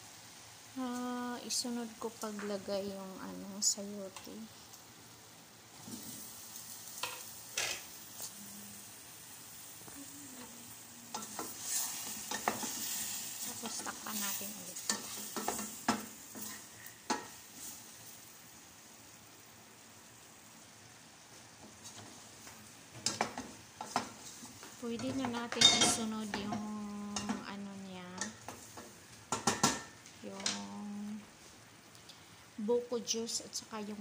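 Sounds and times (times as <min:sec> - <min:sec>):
food sizzling in a pot: 0:00.0 - 0:34.0
wooden spatula stirring: 0:11.1 - 0:17.8.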